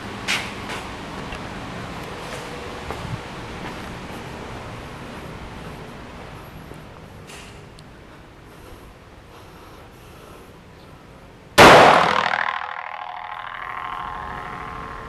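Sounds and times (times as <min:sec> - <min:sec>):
pistol shot with ringing echo: 0:11.6 - 0:13.0.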